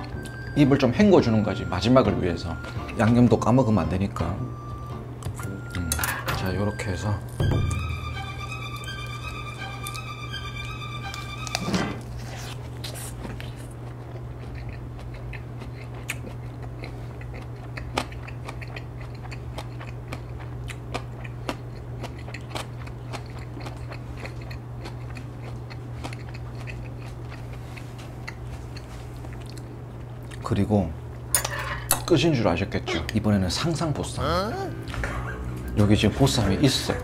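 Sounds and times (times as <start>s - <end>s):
steady low hum: 0.0s - 37.0s
man chewing with crunches: 8.5s - 30.5s.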